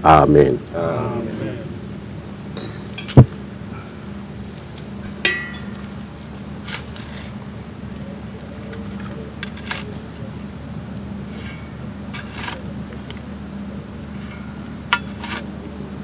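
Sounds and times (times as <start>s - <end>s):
steady low hum: 0.0s - 16.0s
ringing metallic clink: 5.2s - 6.0s.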